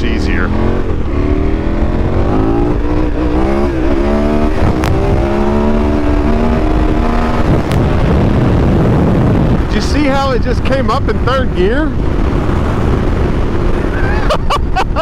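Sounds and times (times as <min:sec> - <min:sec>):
motorcycle engine pulling hard: 0:00.0 - 0:14.3
wind rushing over helmet: 0:00.5 - 0:11.2.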